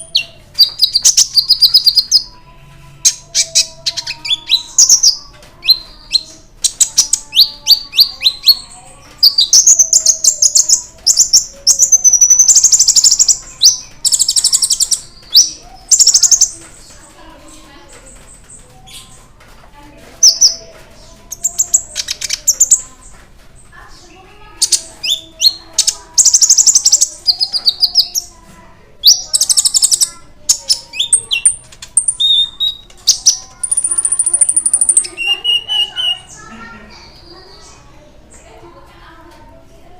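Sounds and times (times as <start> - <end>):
sunbird singing metallic trills: 29.1 - 37.8.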